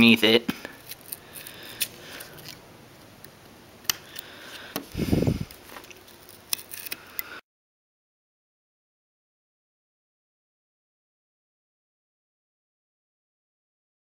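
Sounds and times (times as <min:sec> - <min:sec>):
hobby knife clicks and scraping: 0:05.9 - 0:07.3.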